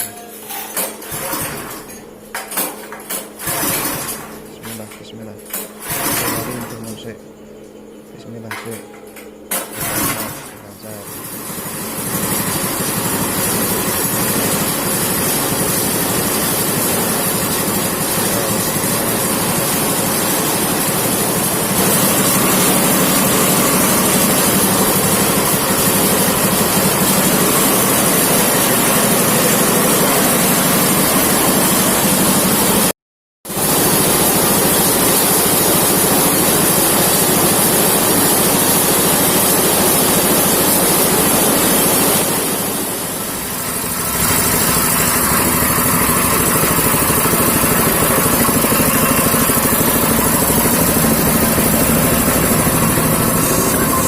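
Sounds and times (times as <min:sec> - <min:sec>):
thresher whirring: 0:00.7 - 0:07.1, 0:09.5 - 0:32.9, 0:33.5 - 0:54.0
diesel engine drone: 0:42.9 - 0:54.0.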